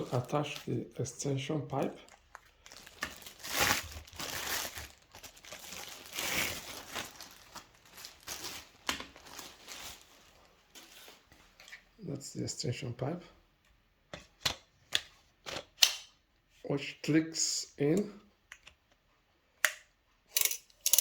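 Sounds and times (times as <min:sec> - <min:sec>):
plastic crinkling and rustling: 0:00.0 - 0:11.8.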